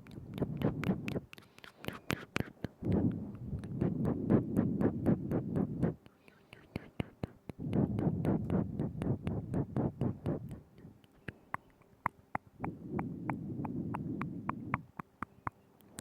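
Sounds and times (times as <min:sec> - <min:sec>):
tongue clicks and lip smacks: 0:00.0 - 0:16.0
breathy rumble: 0:06.8 - 0:15.1.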